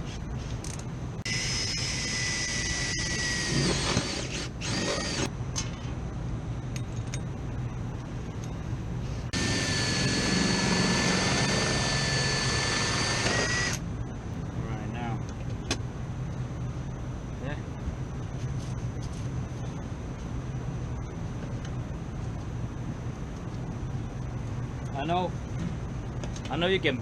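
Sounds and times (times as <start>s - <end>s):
power drill motor whine: 1.3s - 5.3s, 9.3s - 13.8s.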